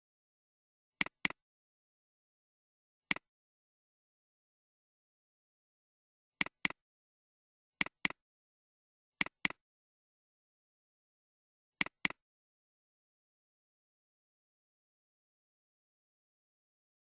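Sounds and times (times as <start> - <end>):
computer mouse double clicks: 11.8 - 12.2.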